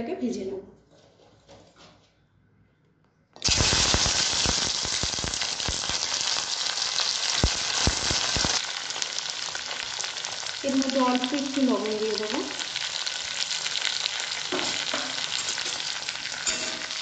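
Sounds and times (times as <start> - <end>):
oil crackling and popping: 3.4 - 17.0
okra sizzling in hot oil: 3.4 - 17.0.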